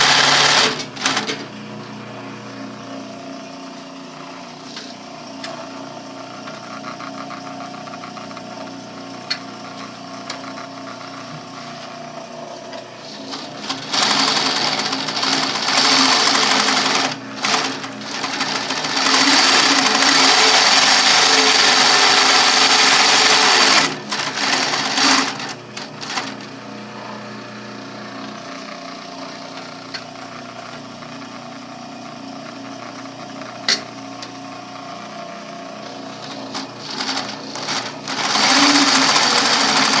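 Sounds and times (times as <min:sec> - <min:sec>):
sewing machine sewing: 0:00.0 - 0:01.5, 0:05.4 - 0:08.6, 0:13.1 - 0:26.5, 0:28.2 - 0:31.5, 0:32.3 - 0:40.0.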